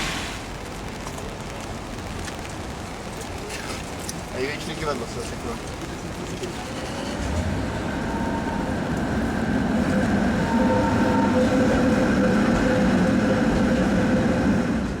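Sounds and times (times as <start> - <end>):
machinery rumble with whine: 5.8 - 15.0.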